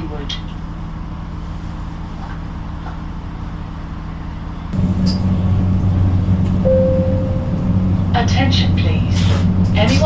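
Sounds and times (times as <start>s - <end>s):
train diesel engine droning: 3.3s - 10.0s
steady tone: 4.8s - 8.3s.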